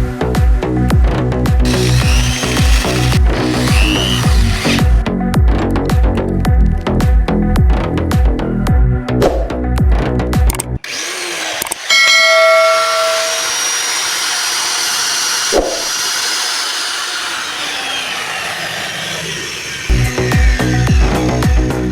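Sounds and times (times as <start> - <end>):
electric cutter whirring: 1.6 - 5.1, 10.8 - 21.9
ringing whine: 11.9 - 13.5.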